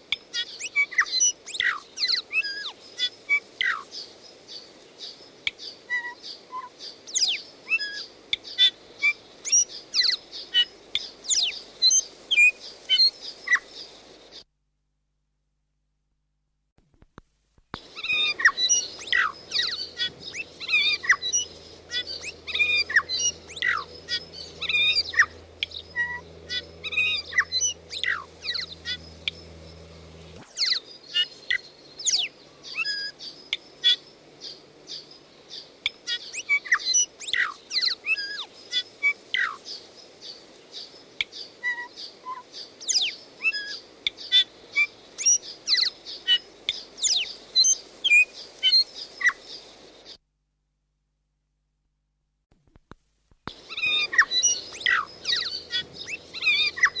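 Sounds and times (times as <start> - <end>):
birds chirping and whistling: 17.8 - 34.0, 53.6 - 57.0.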